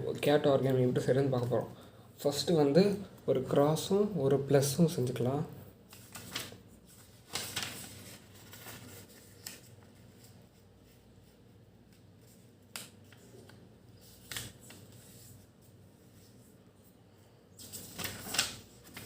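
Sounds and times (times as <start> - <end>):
sharp paper crackles: 5.9 - 10.4, 17.6 - 19.0
paper being folded: 5.9 - 16.4, 17.6 - 19.0.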